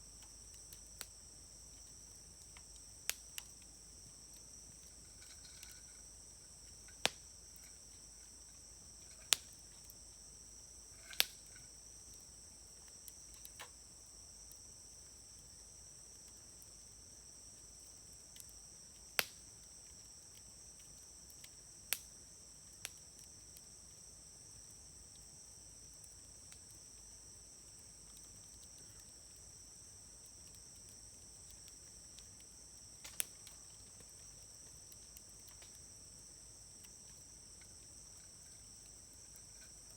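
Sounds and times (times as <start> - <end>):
crickets chirring: 0.0 - 39.9
wood fire burning: 0.0 - 39.9
burning wood popping: 0.2 - 13.9, 19.1 - 19.5, 30.6 - 35.9.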